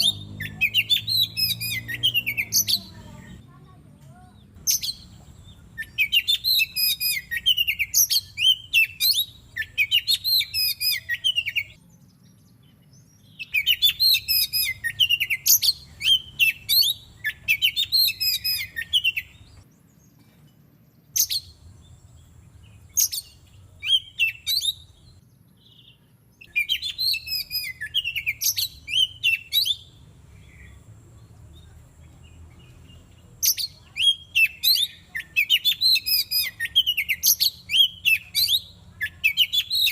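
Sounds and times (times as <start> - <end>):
bird whistled song: 0.0 - 3.0, 4.6 - 20.0, 21.0 - 30.8, 32.6 - 39.9.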